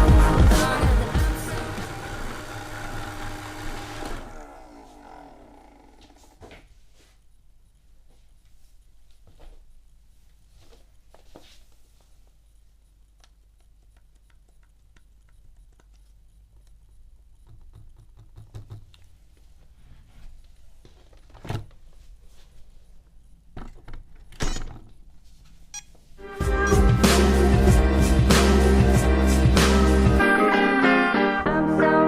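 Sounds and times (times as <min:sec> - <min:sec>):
guitar music: 0:26.2 - 0:32.0.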